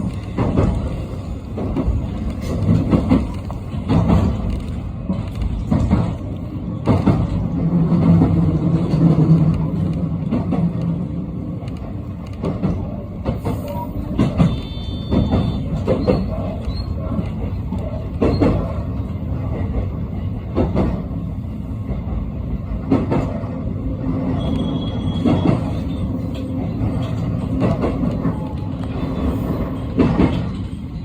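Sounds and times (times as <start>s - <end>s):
train wheels knocking over rail joints: 0.0s - 6.2s.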